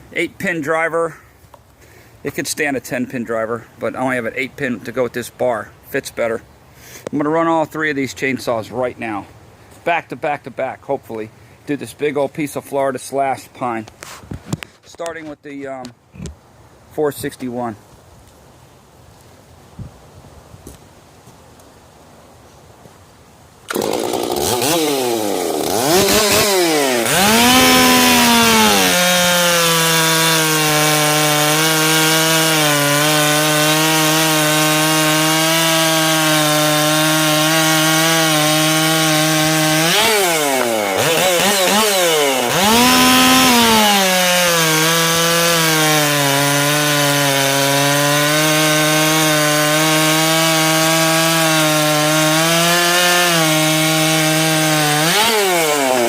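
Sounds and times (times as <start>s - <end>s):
chainsaw cutting log: 23.7s - 56.0s.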